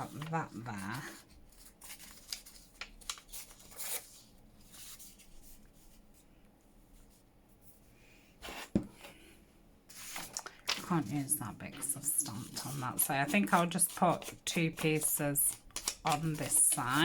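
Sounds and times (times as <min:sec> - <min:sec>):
paper rustling and tapping: 0:10.1 - 0:17.0.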